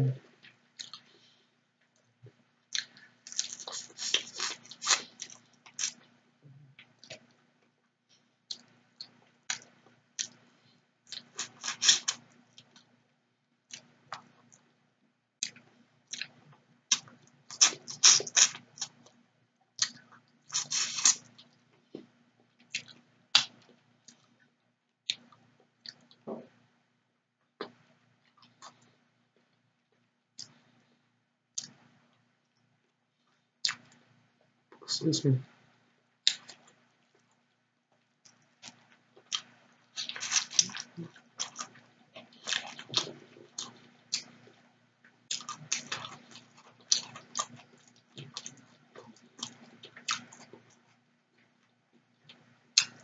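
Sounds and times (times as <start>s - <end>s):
person chewing and crunching fish: 0.8s - 1.1s, 2.7s - 6.1s, 11.1s - 12.8s, 38.2s - 44.6s, 45.3s - 51.5s.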